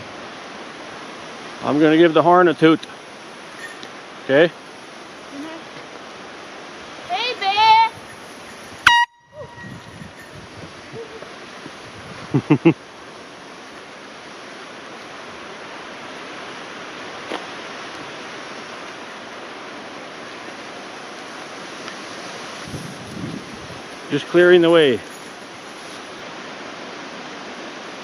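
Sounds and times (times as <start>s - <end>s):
air horn toot: 8.8s - 10.1s
steady rushing noise: 9.5s - 28.0s.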